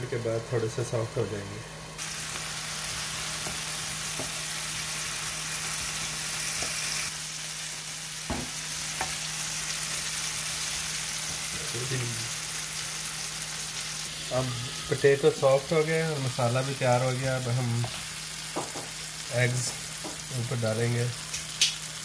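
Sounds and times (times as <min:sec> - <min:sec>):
vegetables sizzling in oil: 0:01.8 - 0:22.0
wooden spoon knocking against pan: 0:18.5 - 0:18.9.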